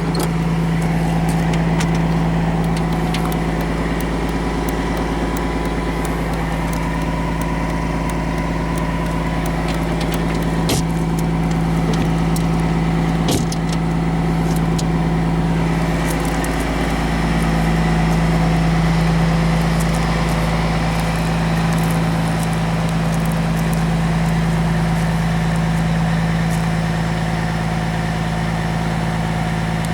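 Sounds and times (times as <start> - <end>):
sharp clicks: 0.0 - 25.8
diesel bus engine idling: 0.0 - 29.9.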